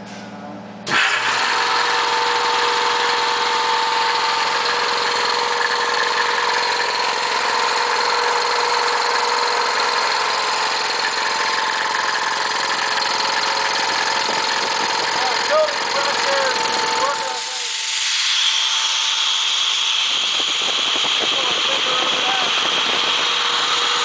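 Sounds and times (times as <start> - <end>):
air compressor running: 0.0 - 24.0.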